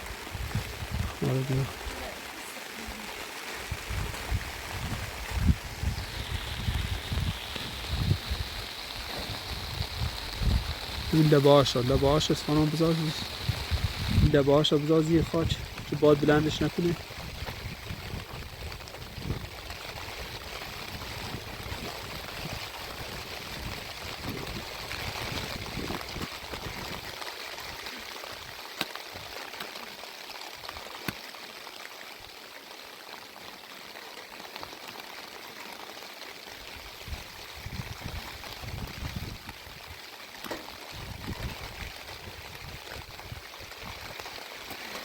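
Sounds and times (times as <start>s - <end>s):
rain hissing: 0.0s - 45.0s.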